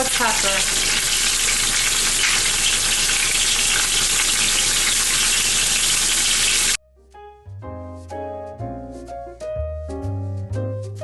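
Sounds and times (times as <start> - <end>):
chicken sizzling in oil: 0.0 - 6.8.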